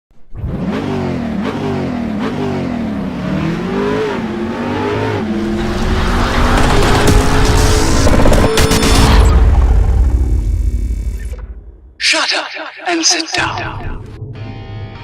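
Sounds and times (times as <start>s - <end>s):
car engine revving: 0.2s - 10.6s.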